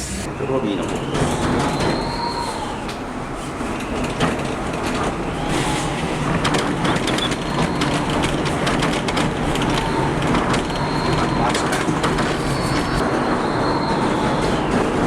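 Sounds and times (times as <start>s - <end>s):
faint high whistle: 1.0s - 3.0s, 9.8s - 14.9s.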